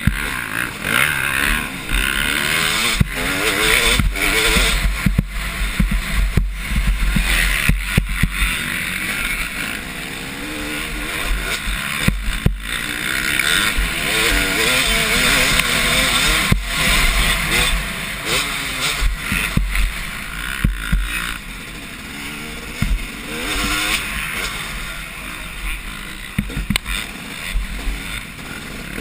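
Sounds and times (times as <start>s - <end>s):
motocross bike engines revving: 0.0s - 29.0s.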